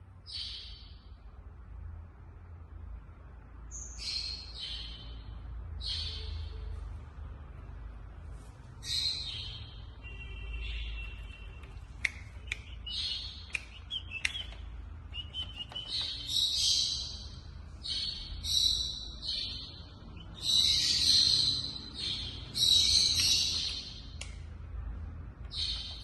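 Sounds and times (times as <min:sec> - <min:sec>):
sharp clicks: 0:11.6 - 0:16.3
cockatiel chirping and screeching: 0:20.4 - 0:24.0.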